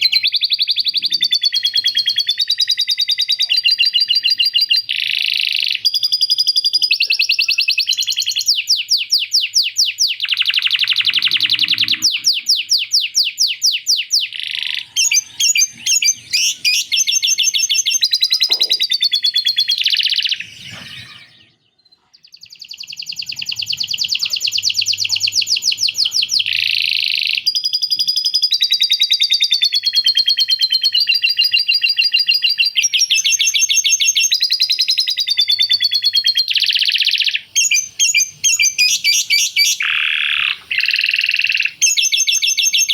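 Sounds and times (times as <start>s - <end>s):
canary singing trills: 0.0s - 42.9s.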